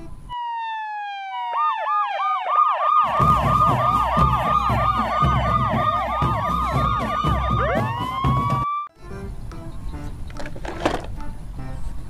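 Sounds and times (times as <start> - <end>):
police siren wailing and yelping: 0.3 - 8.9.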